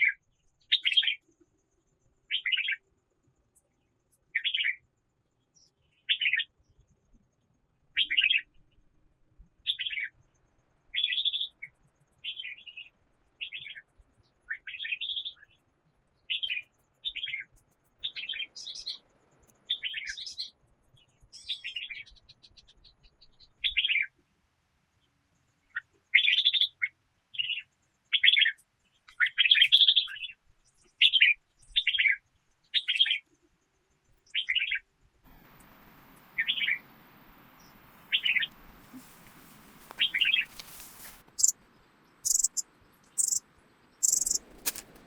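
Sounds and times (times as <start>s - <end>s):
small bird chirping: 0.0s - 1.2s, 9.7s - 24.2s, 25.7s - 33.2s, 34.2s - 45.0s.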